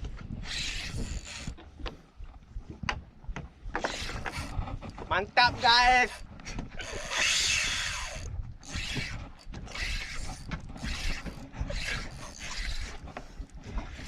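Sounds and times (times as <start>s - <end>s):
fishing reel ratchet rasping: 0.4s - 1.6s, 3.8s - 4.6s, 5.8s - 13.1s.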